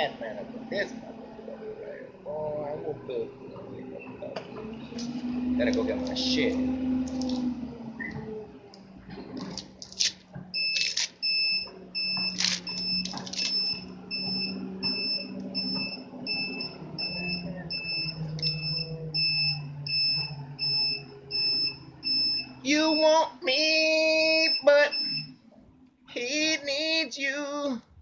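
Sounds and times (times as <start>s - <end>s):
electronic alarm beeping rapidly: 10.6s - 23.3s, 24.3s - 25.3s.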